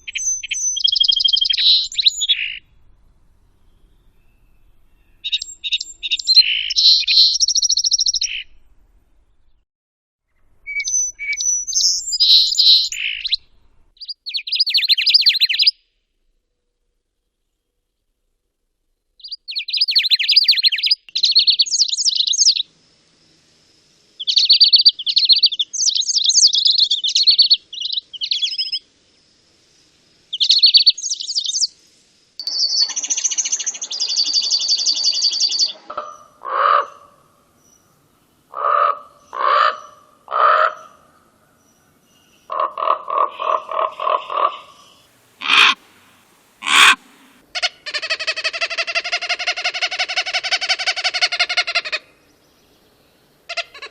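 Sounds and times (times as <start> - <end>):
high bird chirping: 0.0 - 2.7, 3.6 - 8.6, 10.7 - 13.4, 14.0 - 15.7, 19.2 - 22.6, 24.2 - 28.8, 30.3 - 31.7, 32.4 - 36.4, 43.4 - 47.4
low bird calls: 0.0 - 2.7, 3.6 - 8.6, 10.7 - 15.7, 32.4 - 52.6
drawn-out bird call: 0.1 - 2.6, 10.7 - 13.4, 32.4 - 37.3, 38.5 - 41.0, 42.5 - 52.2
buzzy nasal bird call: 42.5 - 52.2
rattling bird call: 45.4 - 46.0, 46.6 - 52.0.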